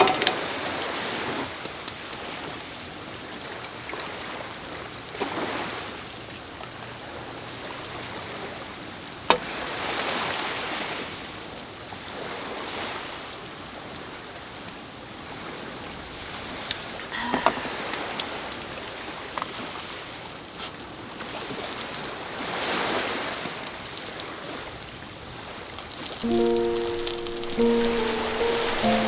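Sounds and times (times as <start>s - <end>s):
sea waves washing ashore: 7.6s - 11.4s, 22.1s - 29.0s.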